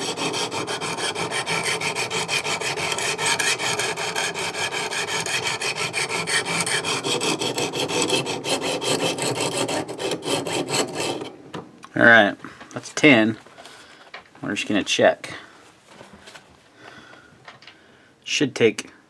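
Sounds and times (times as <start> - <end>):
sharpening stones rasping on knife: 0.0 - 11.3.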